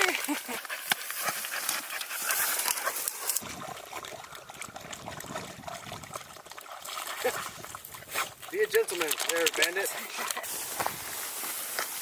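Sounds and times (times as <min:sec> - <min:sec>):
dog moving through brush: 0:07.9 - 0:12.0.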